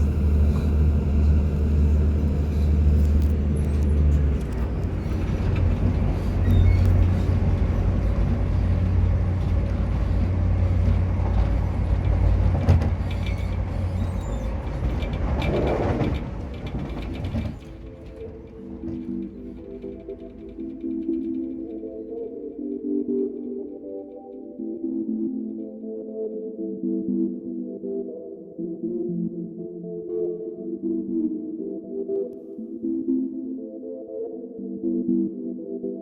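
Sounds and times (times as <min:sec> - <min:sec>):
rumble of moving train: 0:00.0 - 0:22.8
low engine drone: 0:00.0 - 0:23.9.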